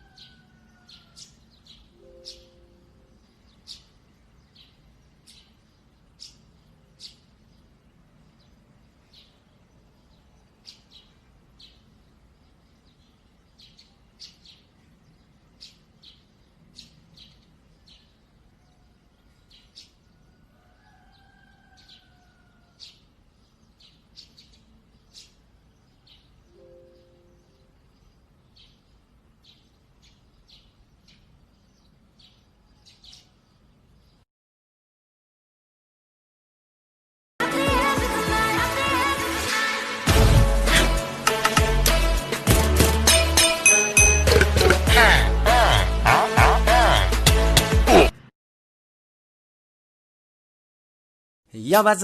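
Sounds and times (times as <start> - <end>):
small birds chirping: 0.0 - 34.2.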